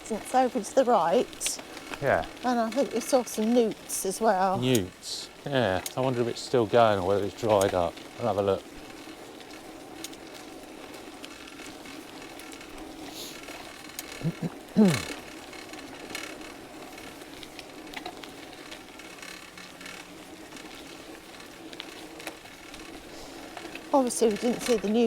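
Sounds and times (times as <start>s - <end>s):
bicycle freewheel ticking: 0.0s - 25.0s
bicycle riding noise: 0.0s - 25.0s
voice falling in pitch: 14.2s - 15.1s.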